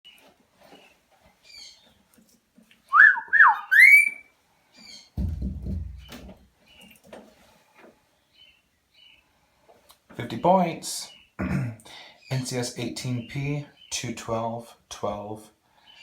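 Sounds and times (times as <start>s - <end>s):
cockatiel whistling: 2.9s - 4.3s.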